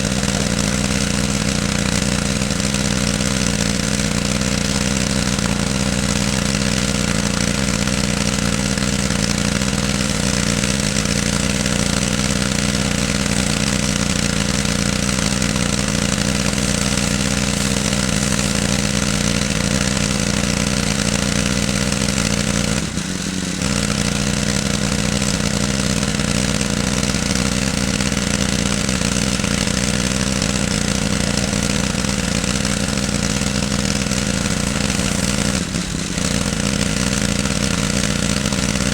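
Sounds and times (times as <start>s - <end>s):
pressure washer engine humming: 0.0s - 38.9s
water spray hissing: 0.0s - 38.9s.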